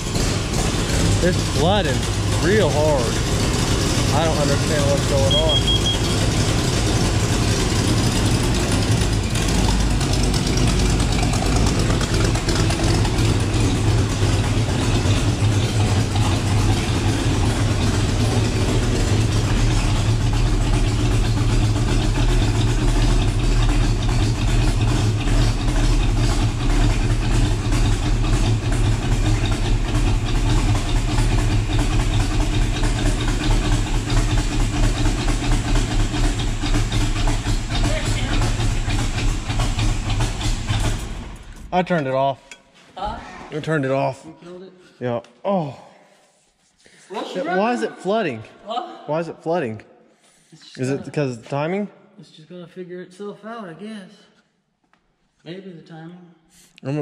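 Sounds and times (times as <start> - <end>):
car engine idling: 0.0 - 42.2.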